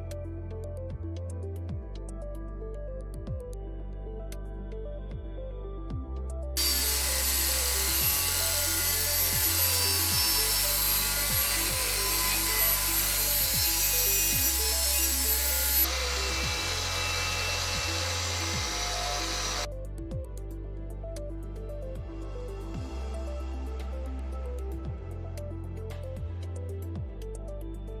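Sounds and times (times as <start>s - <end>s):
angle grinder grinding metal: 6.6s - 19.7s.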